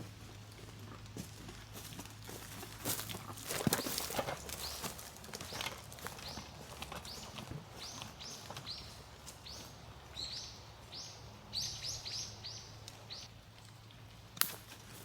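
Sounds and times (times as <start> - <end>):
small bird chirping: 6.2 - 13.3.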